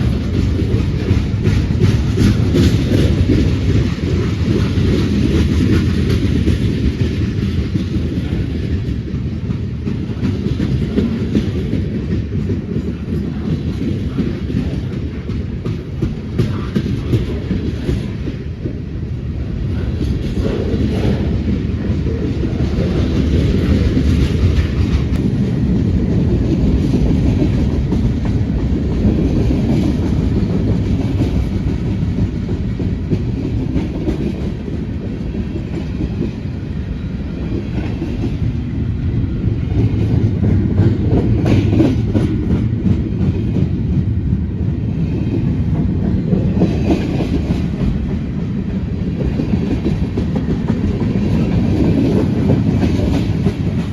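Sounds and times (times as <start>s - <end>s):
wheels clicking over rail joints: 0.0s - 18.8s
train rumbling past: 0.0s - 53.9s.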